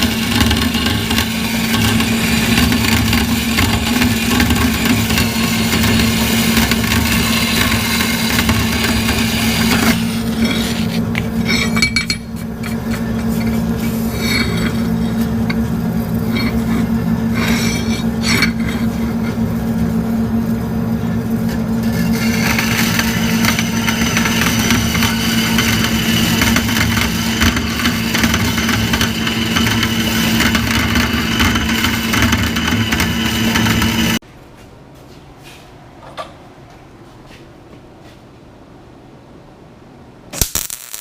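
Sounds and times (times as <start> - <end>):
saw blade cutting steel: 0.0 - 15.6, 16.2 - 19.4, 21.8 - 34.2
bandsaw motor humming: 0.0 - 34.2.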